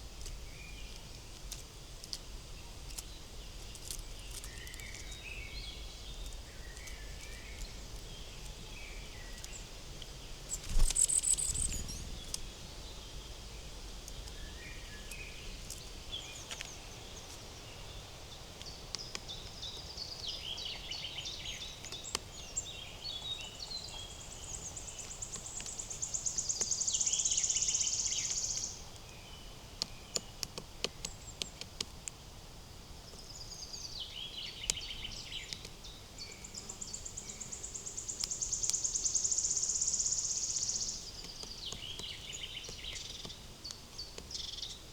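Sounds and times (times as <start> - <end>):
songbirds singing and calling: 0.0 - 44.9.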